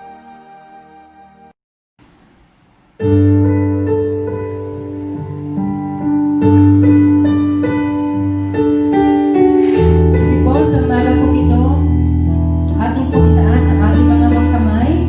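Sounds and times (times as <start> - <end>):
keyboard chords: 0.0 - 1.5, 3.0 - 15.0
deep bass: 9.9 - 15.0.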